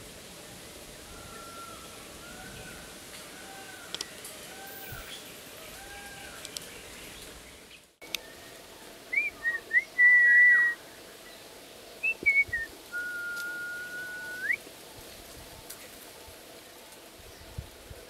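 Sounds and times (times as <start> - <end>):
bird whistling: 9.1 - 10.8, 12.0 - 14.6.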